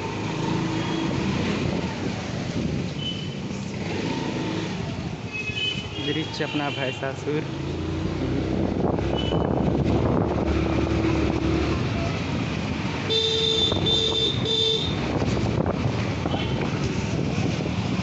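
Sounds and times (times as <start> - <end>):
scooter road noise: 0.0 - 6.3, 7.2 - 18.0
wind buffeting microphone: 8.2 - 12.5, 13.6 - 18.0
vehicle horn honking: 13.1 - 15.0.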